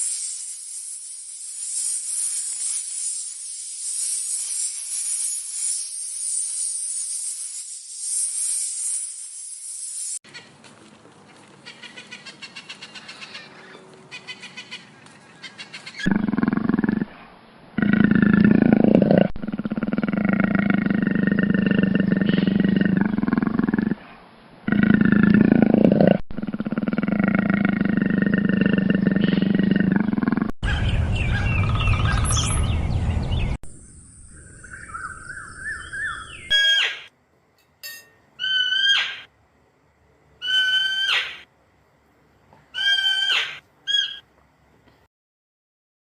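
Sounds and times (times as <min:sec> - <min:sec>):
high animal calls: 0:38.4 - 0:39.3, 0:40.4 - 0:41.5, 0:42.7 - 0:44.2.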